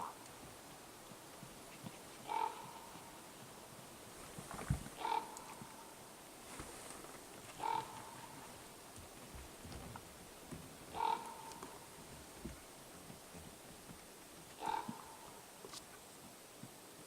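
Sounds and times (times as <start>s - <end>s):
animal call: 1.7s - 3.2s, 5.0s - 5.9s, 7.6s - 8.5s, 10.9s - 11.9s, 14.6s - 15.4s.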